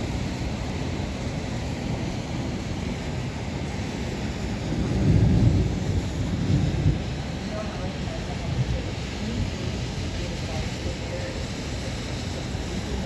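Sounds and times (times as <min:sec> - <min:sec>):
wind gusting against microphone: 0:00.0 - 0:13.0
low thunder rumble: 0:04.4 - 0:10.0.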